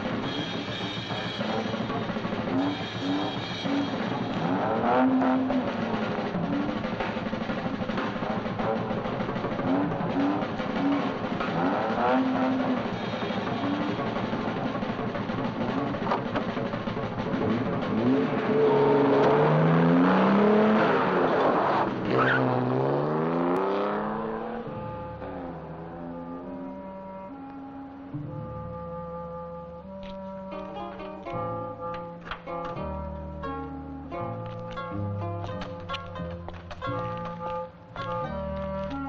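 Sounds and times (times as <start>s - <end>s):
film score music: 0.0s - 39.0s
car engine accelerating: 1.3s - 30.0s.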